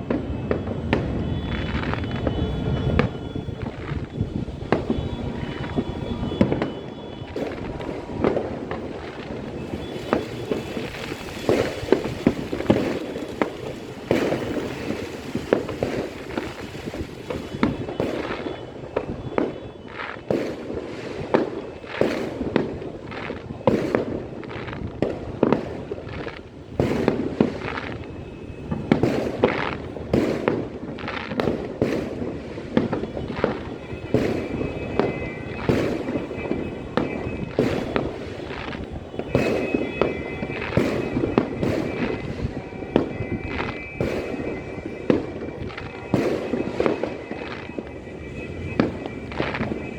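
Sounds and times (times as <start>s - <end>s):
crackling rumble: 0.0s - 49.9s
firecrackers banging: 0.0s - 49.9s.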